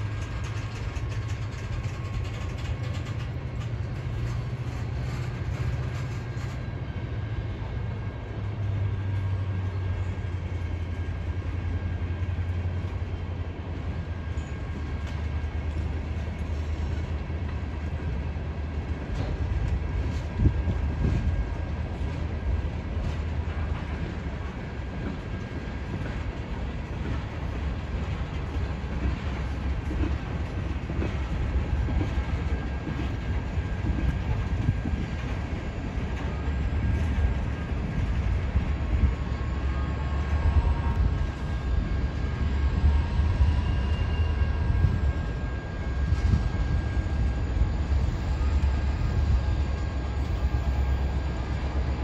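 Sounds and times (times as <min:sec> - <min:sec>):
train cars rolling past: 0:00.0 - 0:52.0.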